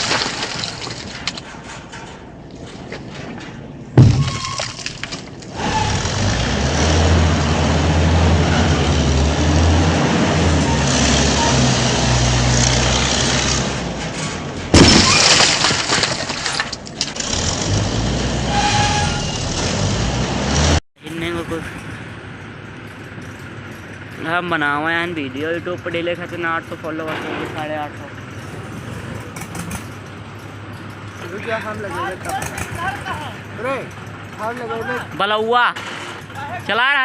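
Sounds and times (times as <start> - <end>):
loud clatter: 26.2 - 33.2.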